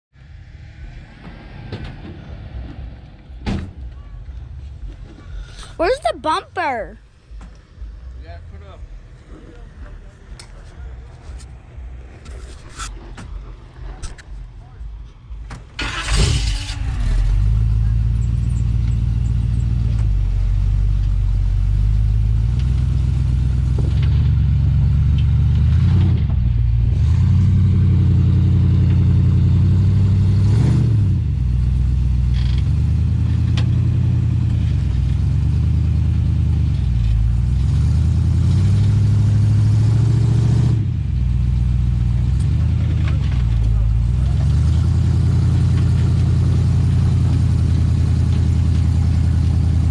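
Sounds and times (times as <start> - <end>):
engine revving at low revs: 15.8 - 49.9.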